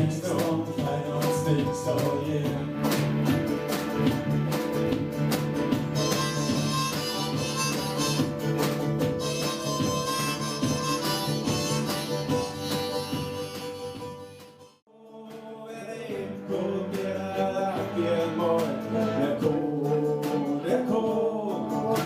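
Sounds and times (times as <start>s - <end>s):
strummed acoustic guitar: 0.0s - 22.0s
harmonica: 5.8s - 14.8s.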